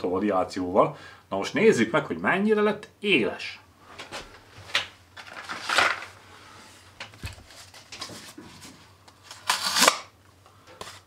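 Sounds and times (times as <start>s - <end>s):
paper handling: 4.7s - 6.2s, 7.0s - 9.9s.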